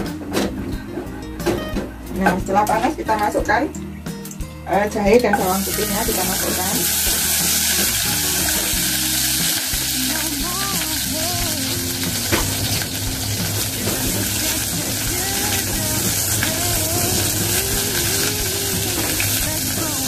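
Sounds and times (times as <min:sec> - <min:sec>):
ginger and garlic sizzling in oil: 0:04.2 - 0:20.0.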